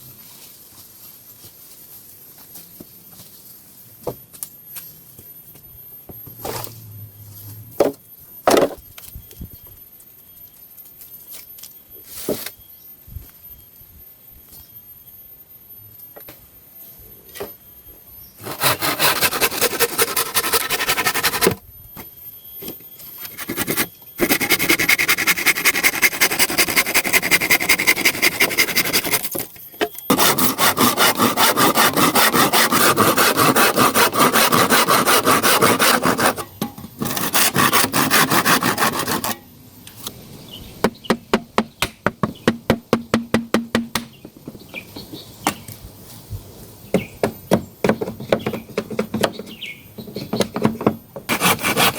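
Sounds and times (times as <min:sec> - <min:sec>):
hand saw cutting wood: 0:18.4 - 0:21.6, 0:23.3 - 0:29.4, 0:30.1 - 0:39.4, 0:51.3 - 0:51.9.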